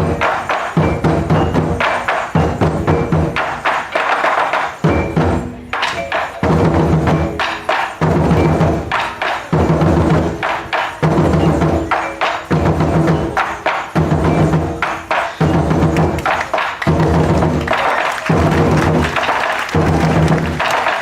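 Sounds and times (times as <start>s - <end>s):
sharp clacks: 5.8s - 9.8s, 10.4s - 21.0s.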